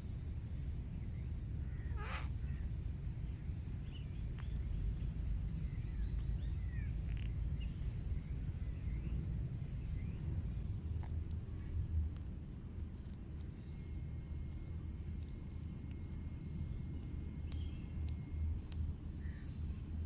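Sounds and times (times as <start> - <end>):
steady low rumble: 0.0 - 20.0
cockatoo screeching: 1.9 - 2.4.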